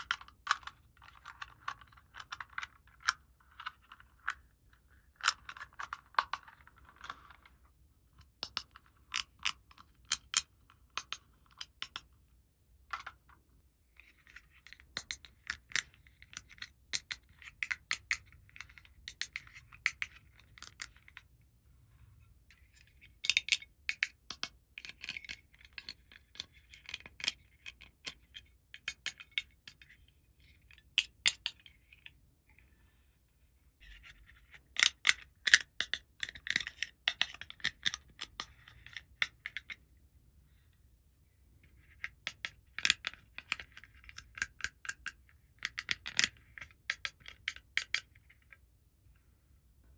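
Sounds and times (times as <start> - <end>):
plastic toy pieces clicking: 0.0 - 4.4, 8.4 - 12.1, 14.4 - 21.2, 23.2 - 30.0, 34.7 - 39.7, 41.9 - 48.2.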